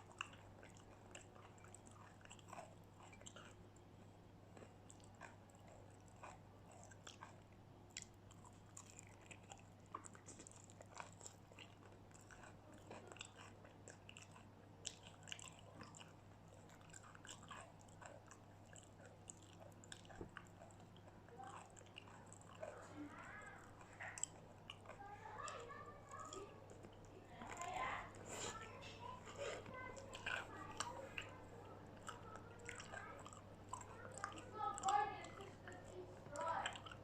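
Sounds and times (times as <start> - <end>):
crunching fried food: 4.5 - 37.0.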